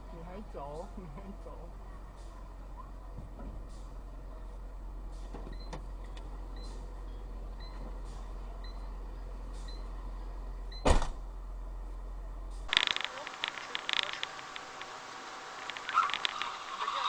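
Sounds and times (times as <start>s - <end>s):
crackling noise: 12.7s - 17.0s.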